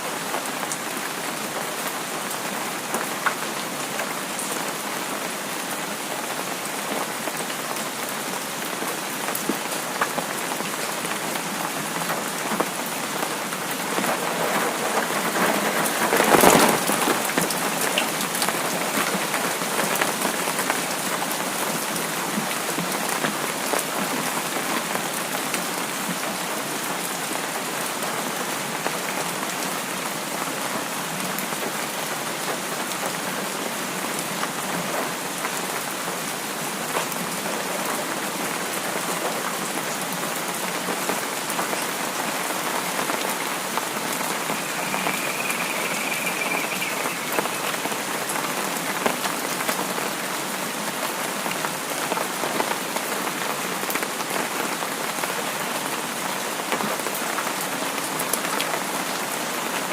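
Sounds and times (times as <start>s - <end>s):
rain hissing: 11.6s - 20.3s, 40.6s - 50.3s
faint high tone: 44.2s - 48.1s.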